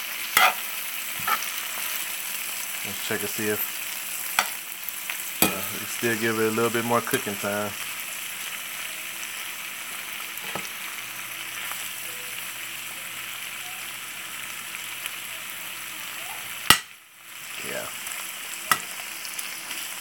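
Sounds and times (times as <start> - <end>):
food sizzling in a skillet: 0.0 - 20.0
metal spoon stirring: 0.4 - 1.5.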